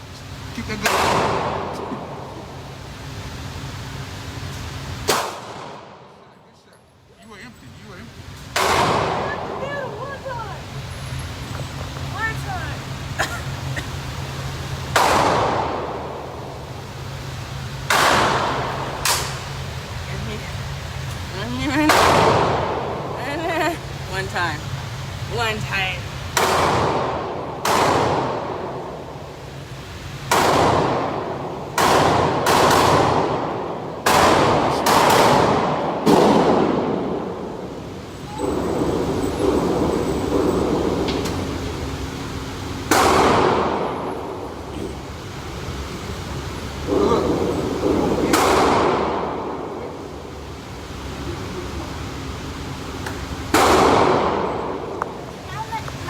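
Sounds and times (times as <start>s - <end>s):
gunshots with echoing decay: 8.6s - 9.6s, 15.0s - 16.2s, 26.4s - 28.8s, 30.3s - 37.5s, 42.9s - 43.9s, 46.9s - 49.7s, 53.5s - 54.8s.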